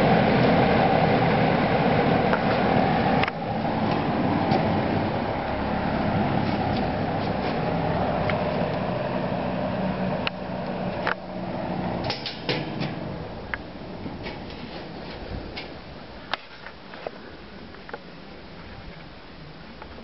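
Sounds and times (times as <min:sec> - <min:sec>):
box fan humming: 0:00.0 - 0:20.0.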